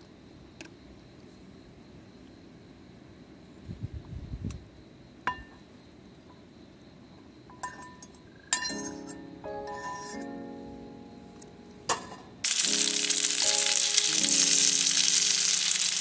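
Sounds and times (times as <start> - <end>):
cookware clinking: 7.5 - 10.3, 11.9 - 12.4.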